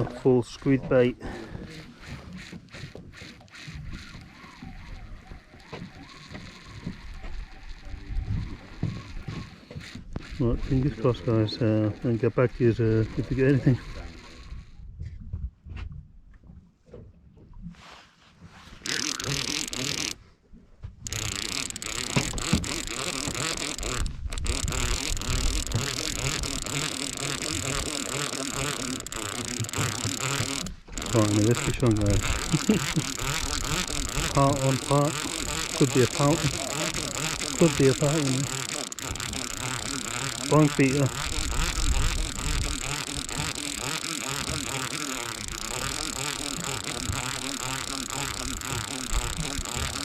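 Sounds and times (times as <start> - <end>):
fishing reel ratchet ticking: 0.0 - 14.8, 18.8 - 20.2, 21.0 - 50.0
boat engine: 0.0 - 15.0, 18.7 - 50.0
water noise: 0.0 - 15.4, 18.4 - 50.0
wind: 0.0 - 50.0.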